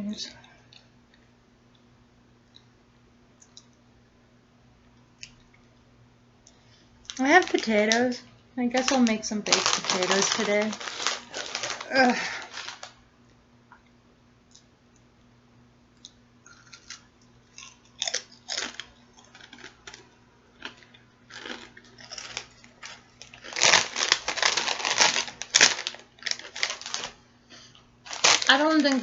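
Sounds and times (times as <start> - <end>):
person chewing and crunching food: 9.5 - 12.9, 16.0 - 28.9.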